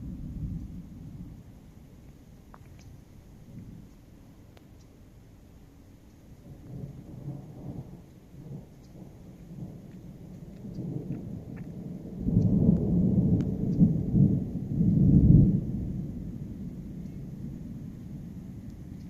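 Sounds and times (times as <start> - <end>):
rolling thunder: 0.0 - 1.8, 6.4 - 19.0
faint ticks: 2.0 - 13.9, 17.0 - 17.2, 18.6 - 19.0.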